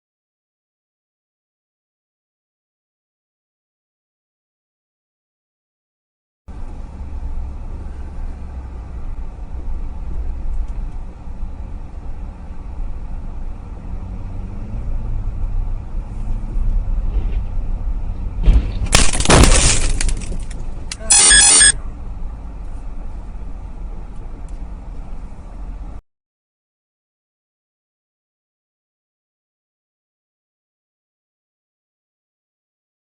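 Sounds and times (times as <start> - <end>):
car engine and road noise: 6.5 - 26.0
loud crash: 18.4 - 20.5.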